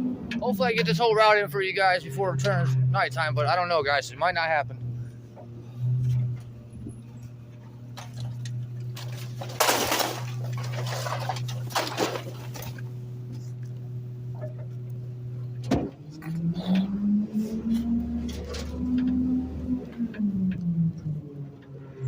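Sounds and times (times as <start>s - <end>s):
garbage truck hum: 0.0s - 22.0s
trash bags crunching and bursting: 8.8s - 12.9s.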